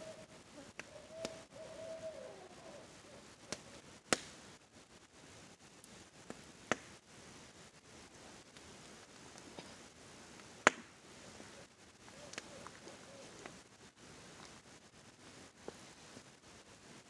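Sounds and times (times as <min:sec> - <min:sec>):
owl hooting: 0:00.0 - 0:03.9, 0:11.2 - 0:13.6
campfire wood crackling: 0:00.0 - 0:17.0.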